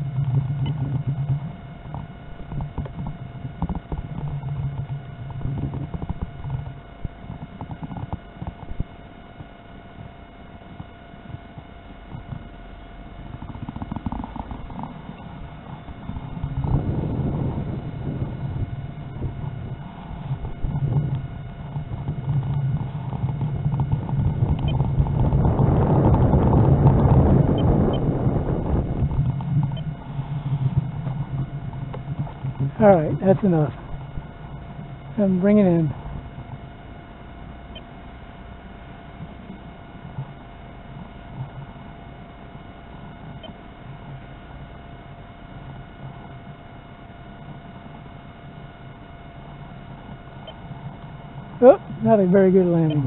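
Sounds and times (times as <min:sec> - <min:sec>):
wind buffeting microphone: 0:00.0 - 0:10.2, 0:10.8 - 0:37.8
electric motor whine overhead: 0:00.0 - 0:53.0
model plane propeller drone: 0:00.0 - 0:53.0.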